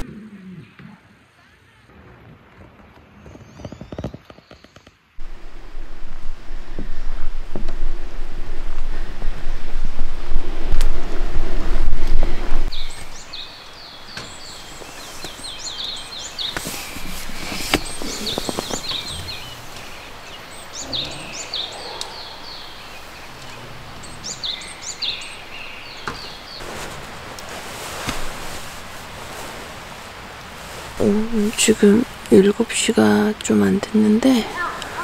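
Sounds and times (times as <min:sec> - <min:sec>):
outdoor hiss: 0:05.0 - 0:35.0
songbirds chirping: 0:11.6 - 0:35.0.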